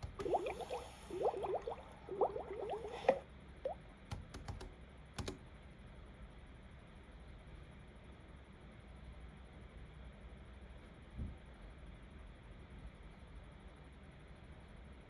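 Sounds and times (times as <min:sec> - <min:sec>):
computer keyboard clicks: 0:04.1 - 0:05.4.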